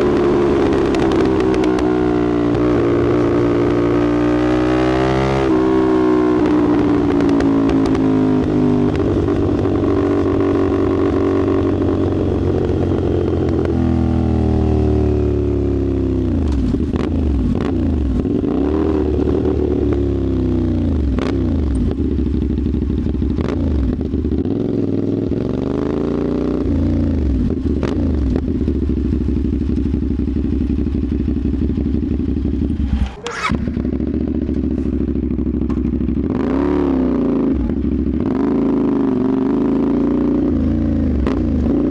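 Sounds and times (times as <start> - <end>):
motorcycle engine revving: 0.0 - 41.9
exhaust pops: 32.6 - 36.2.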